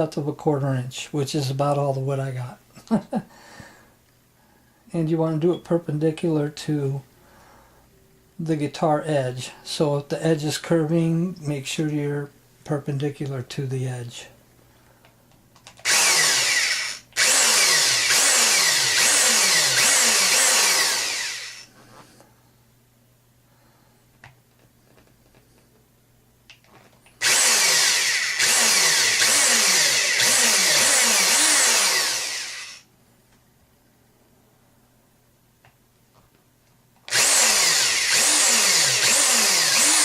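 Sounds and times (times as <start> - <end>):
electric drill boring into wood: 15.8 - 21.7, 27.2 - 32.8, 37.1 - 40.0.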